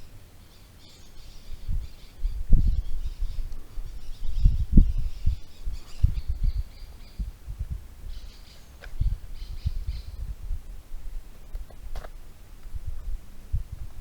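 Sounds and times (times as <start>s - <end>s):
birds chirping: 0.0s - 7.4s, 8.0s - 10.8s
low irregular thumps: 4.3s - 8.0s.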